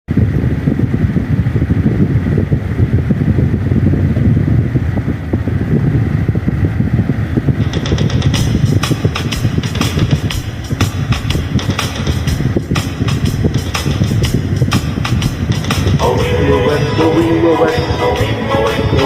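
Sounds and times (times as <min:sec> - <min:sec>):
wind buffeting microphone: 0:00.1 - 0:19.0
music with a beat: 0:07.6 - 0:19.0.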